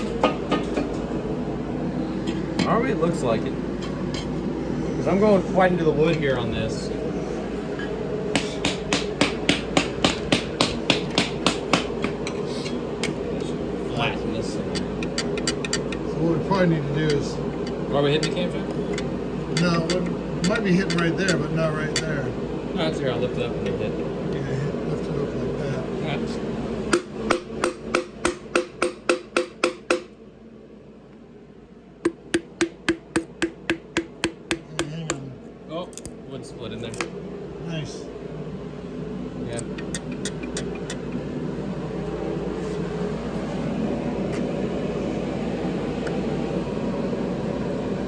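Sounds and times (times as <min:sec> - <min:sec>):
hammer tapping on wood: 0:08.3 - 0:12.3, 0:27.0 - 0:30.1, 0:32.1 - 0:35.2.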